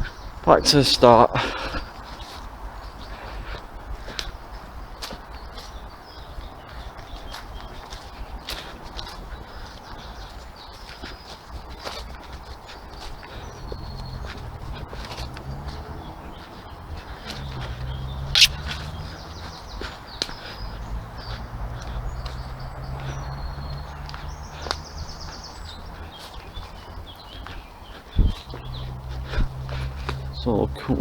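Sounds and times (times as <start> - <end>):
birds chirping: 0.0 - 31.0
footsteps on woodland path: 0.0 - 31.0
wind rumble: 0.0 - 31.0
sharp snap: 18.3 - 18.7.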